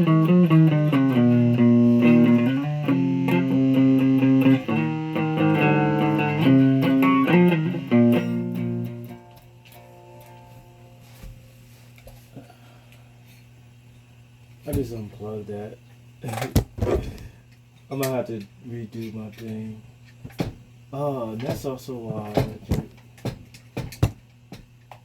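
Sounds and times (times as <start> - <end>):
electric guitar playing: 0.0 - 11.2
faint amp hum: 0.0 - 25.0.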